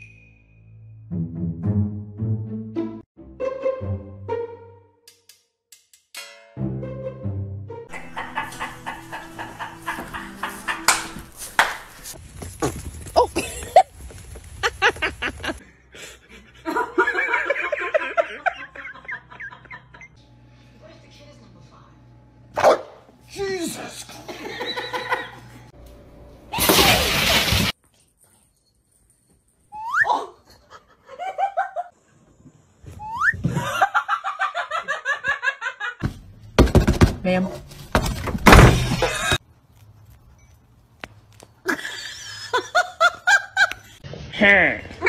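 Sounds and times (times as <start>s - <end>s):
rising squeal: 0.0s - 1.1s, 32.9s - 33.4s
person giggling: 7.9s - 11.4s, 13.2s - 14.0s, 41.6s - 44.0s
person snickering: 7.9s - 11.4s, 13.2s - 14.0s, 41.6s - 44.0s.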